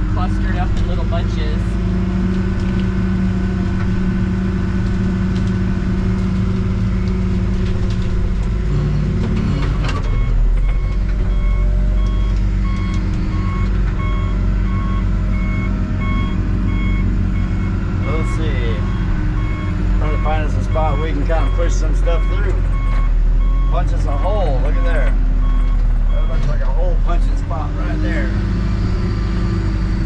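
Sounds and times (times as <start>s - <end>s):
diesel engine running: 0.0s - 30.0s
backup alarm beeping: 10.0s - 26.6s.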